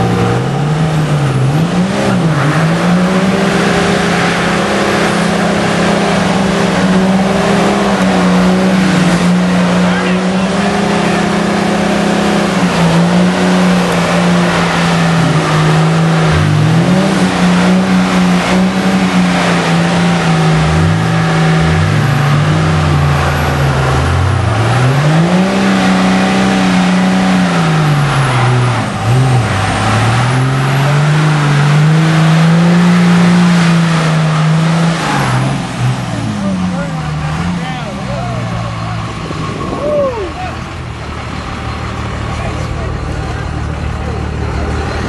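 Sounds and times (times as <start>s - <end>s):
diesel engine revving: 0.0s - 45.0s
second lower engine tone: 26.6s - 45.0s.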